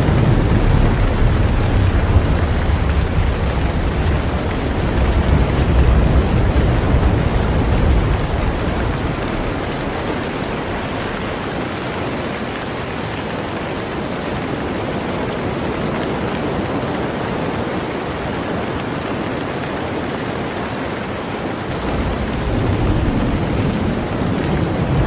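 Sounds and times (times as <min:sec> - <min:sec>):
low rumble: 0:00.0 - 0:11.7, 0:21.7 - 0:25.0
heavy rain on a boat: 0:00.0 - 0:25.0.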